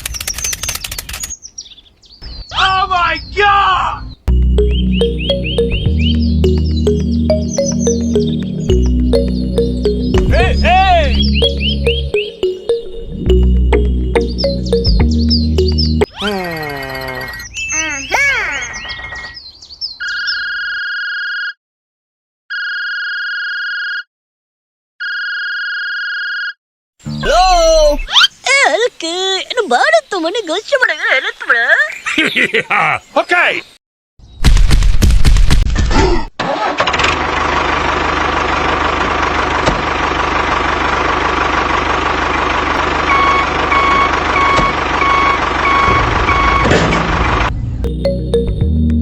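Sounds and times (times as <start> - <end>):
high electronic beeps: 4.3 - 16.1
small engine rumbling: 36.5 - 48.6.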